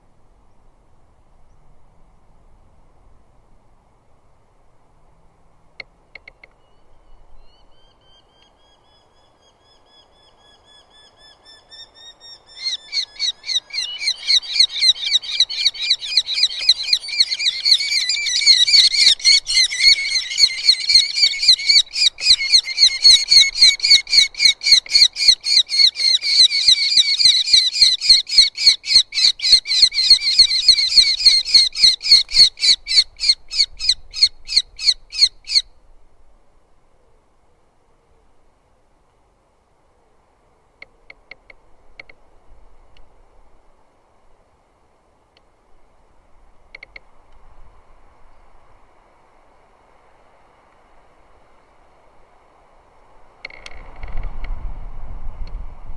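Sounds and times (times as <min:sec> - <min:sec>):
falcon calling rapidly: 0:11.1 - 0:35.7.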